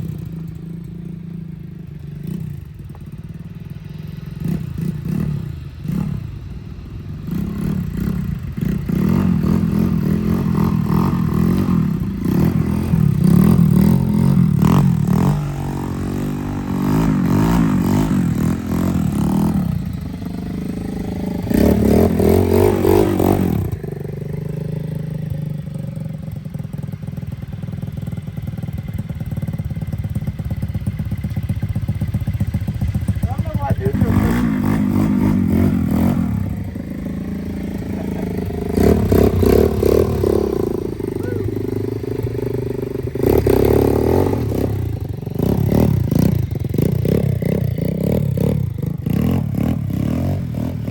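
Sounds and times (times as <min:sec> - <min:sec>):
dirt bike engine revving: 0:07.2 - 0:25.7, 0:30.6 - 0:50.9.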